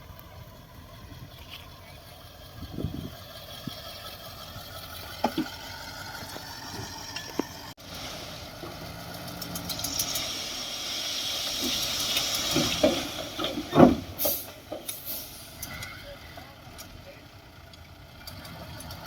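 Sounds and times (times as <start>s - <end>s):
heavy construction machinery working: 0.0s - 19.0s
machinery hiss: 9.6s - 13.4s.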